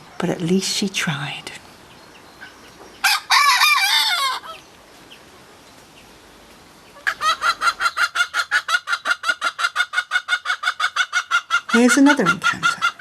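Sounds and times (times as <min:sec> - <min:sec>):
chicken crow-like call: 0:03.0 - 0:04.6
chickens clucking: 0:06.8 - 0:13.0.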